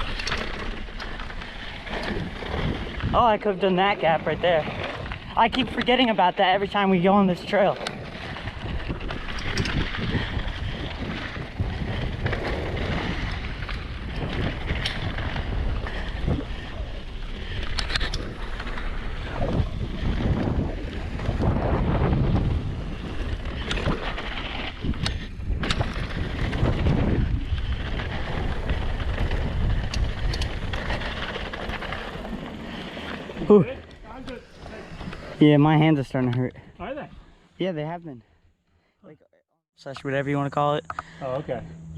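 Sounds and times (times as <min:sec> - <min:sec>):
bike chain rattling: 0:00.0 - 0:03.2, 0:04.2 - 0:21.5, 0:22.6 - 0:35.2
wind buffeting microphone: 0:00.8 - 0:37.3
tyre rumble on dirt: 0:18.7 - 0:35.4.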